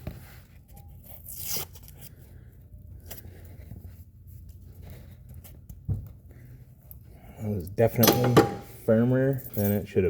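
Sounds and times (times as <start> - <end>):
tearing scrape: 1.0 - 2.1.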